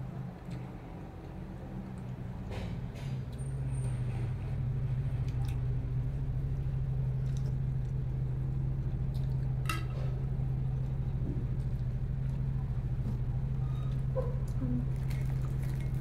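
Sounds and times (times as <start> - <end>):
steady low hum: 0.0 - 16.0
chewing fried snacks: 13.9 - 16.0.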